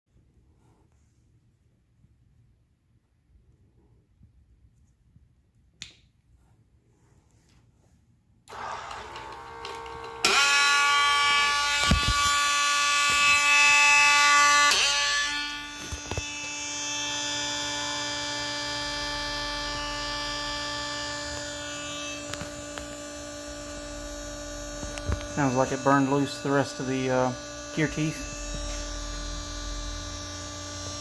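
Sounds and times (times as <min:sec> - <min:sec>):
motor clicks: 0:08.5 - 0:10.5
motor whining: 0:08.5 - 0:31.0.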